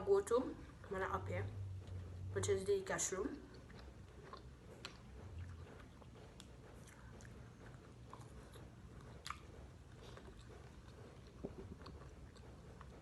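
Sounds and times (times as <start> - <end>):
person chewing food: 1.8 - 2.3, 3.2 - 13.0.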